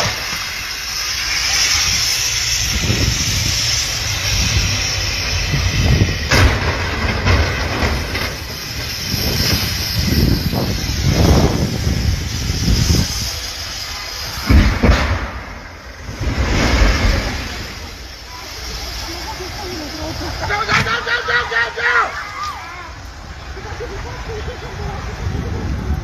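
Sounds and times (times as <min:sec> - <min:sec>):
wind buffeting microphone: 0:01.7 - 0:20.9, 0:23.0 - 0:26.0.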